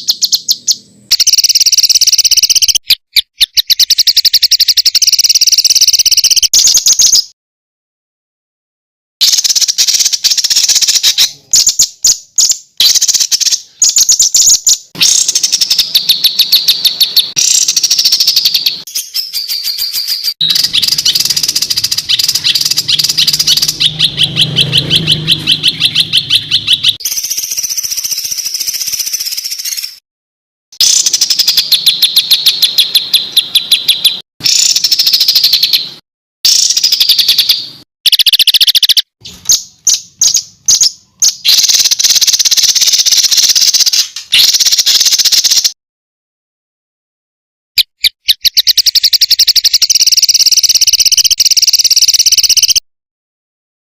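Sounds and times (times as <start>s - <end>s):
songbird chattering trills: 0.0s - 7.3s, 9.2s - 30.0s, 30.8s - 45.8s.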